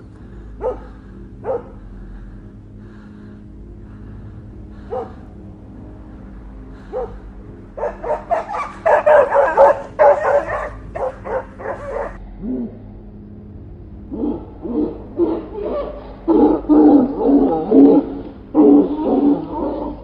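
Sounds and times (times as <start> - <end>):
faint steady hum: 0.0 - 20.0
dog barking: 0.6 - 1.8, 4.8 - 5.2, 6.7 - 12.6.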